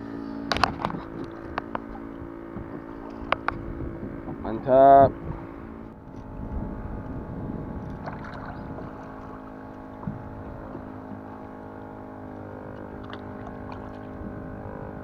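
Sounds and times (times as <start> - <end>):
steady hum: 0.0 - 15.0
water lapping against kayak hull: 0.3 - 15.0.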